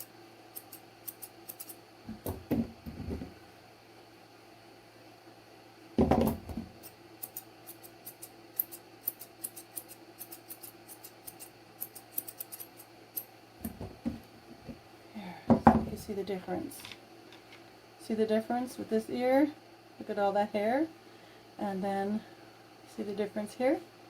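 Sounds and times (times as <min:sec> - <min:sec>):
scissors snipping hair: 0:00.0 - 0:01.8, 0:06.8 - 0:13.3.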